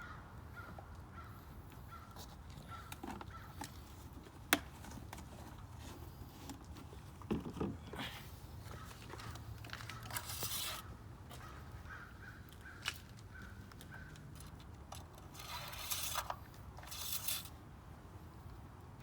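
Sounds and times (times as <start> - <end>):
rubbing and scraping handling noise: 2.2 - 11.6, 14.3 - 17.6.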